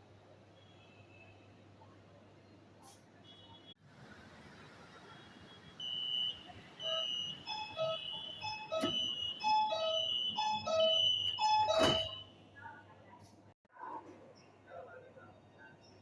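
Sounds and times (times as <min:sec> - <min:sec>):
electronic chime melody beeps: 0:06.8 - 0:12.2.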